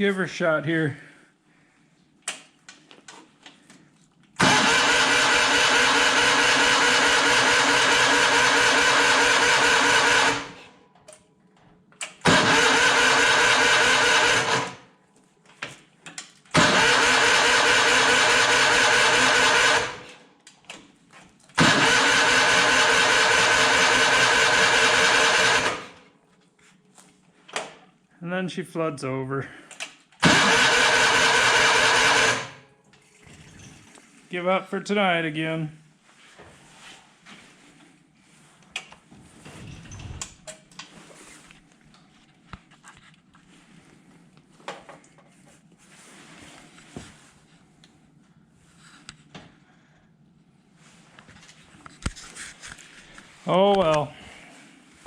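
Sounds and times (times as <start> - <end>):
tractor engine cranking: 4.4 - 10.6, 12.2 - 14.8, 16.5 - 20.1, 21.6 - 26.0, 30.2 - 32.6.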